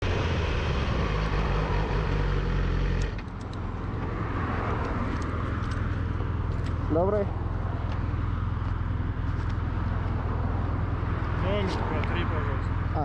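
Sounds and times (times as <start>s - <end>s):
motorcycle engine running: 0.0s - 4.0s.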